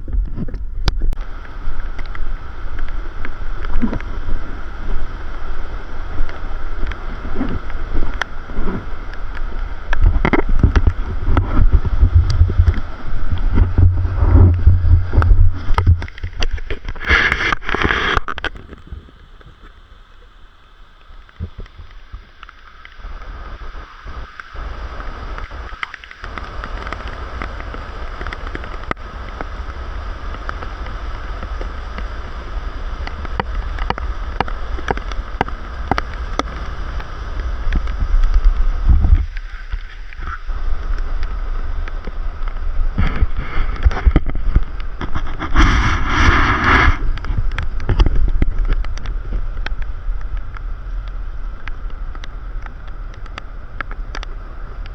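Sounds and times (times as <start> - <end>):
wind buffeting microphone: 0.0 - 19.6, 24.7 - 54.9
vehicle rumbling: 0.0 - 20.1.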